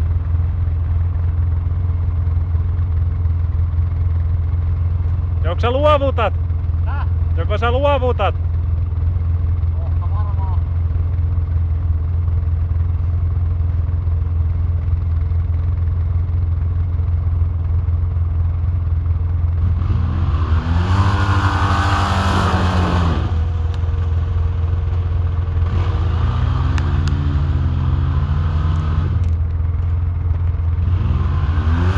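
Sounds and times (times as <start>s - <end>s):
atv engine revving: 19.4s - 31.9s.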